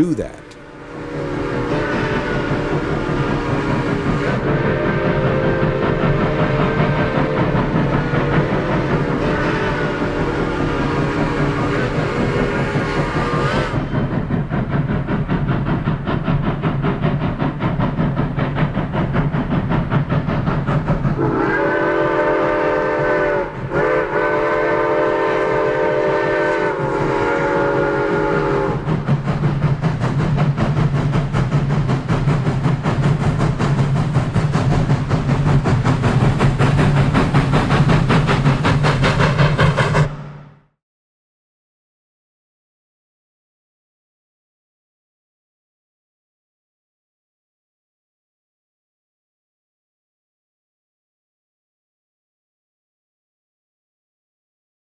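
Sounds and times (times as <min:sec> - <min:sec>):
steam locomotive rumble and clatter: 0:00.0 - 0:40.8
steam whistle blasts: 0:00.4 - 0:13.9, 0:21.2 - 0:28.9.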